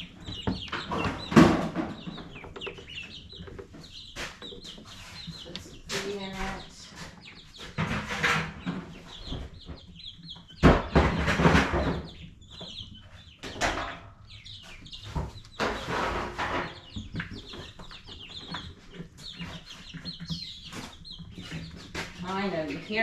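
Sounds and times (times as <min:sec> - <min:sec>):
ducklings peeping: 0:00.0 - 0:23.0.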